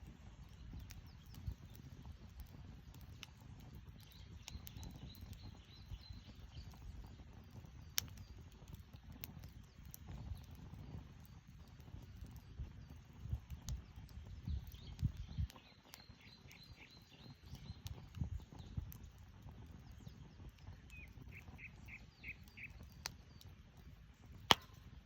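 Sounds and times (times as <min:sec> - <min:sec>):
firewood crackling and popping: 0:00.0 - 0:25.0
birds chirping: 0:12.0 - 0:24.4.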